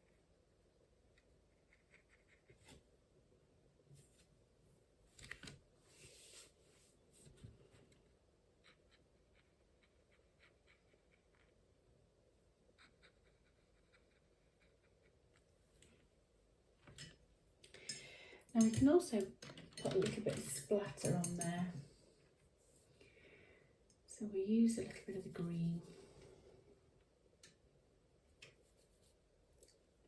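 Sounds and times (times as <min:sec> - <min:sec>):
paintbrush scratching on paper: 0:01.5 - 0:02.6, 0:08.6 - 0:11.6, 0:12.7 - 0:15.4, 0:24.8 - 0:26.0, 0:28.6 - 0:29.2.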